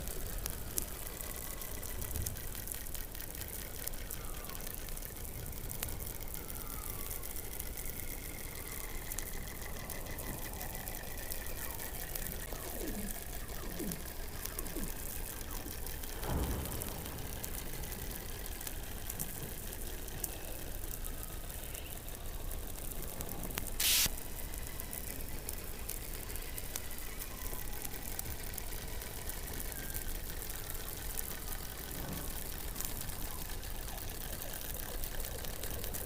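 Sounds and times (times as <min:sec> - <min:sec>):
underwater hiss with crackles: 0:00.0 - 0:36.0
loud burst of hissing: 0:16.1 - 0:22.3, 0:23.0 - 0:29.8.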